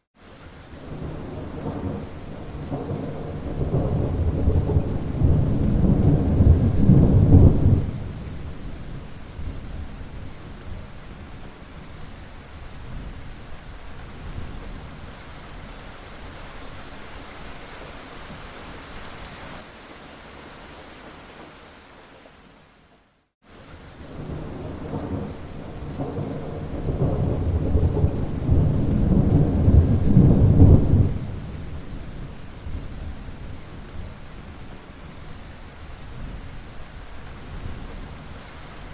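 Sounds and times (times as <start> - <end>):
steady rain falling: 0.0 - 38.9
low roll of thunder: 0.8 - 12.0, 24.0 - 35.4.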